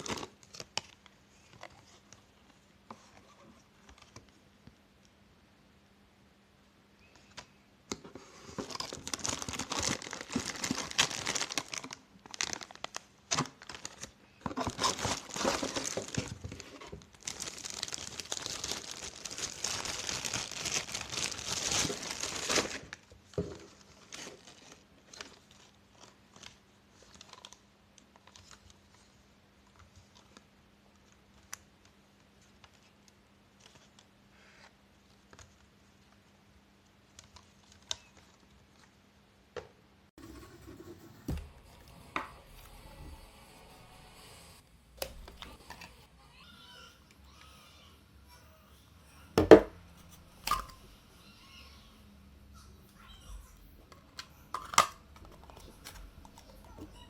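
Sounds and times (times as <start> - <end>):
crinkly material crumpling: 8.2 - 36.3, 53.0 - 57.0.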